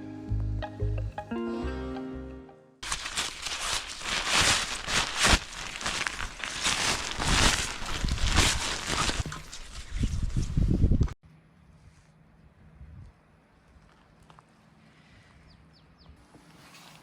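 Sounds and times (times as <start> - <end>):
music: 0.0 - 2.8
crackly rustling and crunching: 2.8 - 10.7.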